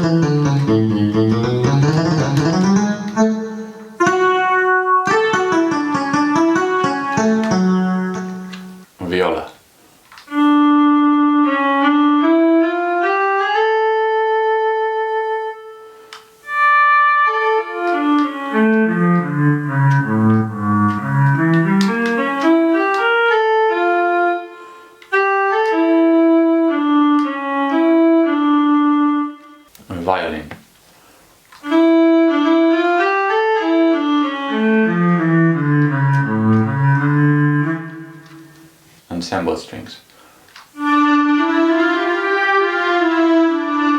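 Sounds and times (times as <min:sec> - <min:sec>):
bowed string-like melody: 0:00.0 - 0:08.9, 0:16.4 - 0:29.6, 0:31.7 - 0:38.4, 0:40.8 - 0:43.9
synthesized viola notes: 0:00.0 - 0:08.9, 0:14.2 - 0:29.5, 0:31.6 - 0:38.8, 0:40.8 - 0:43.9.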